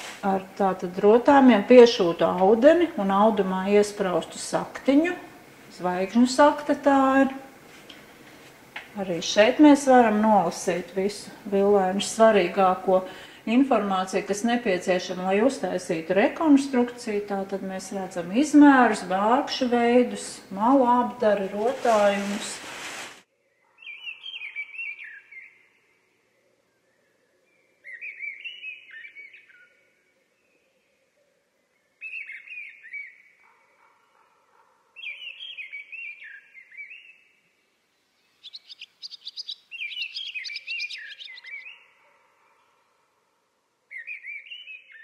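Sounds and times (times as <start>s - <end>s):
faint low steady hum: 0.0s - 23.0s
songbird warbling chirps: 23.5s - 30.9s, 31.7s - 33.5s, 35.0s - 37.4s, 38.0s - 42.0s, 43.9s - 45.0s.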